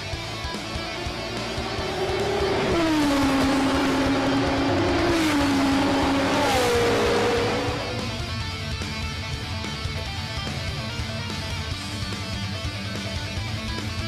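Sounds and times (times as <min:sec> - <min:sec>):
race car engine running hard: 0:00.0 - 0:14.0.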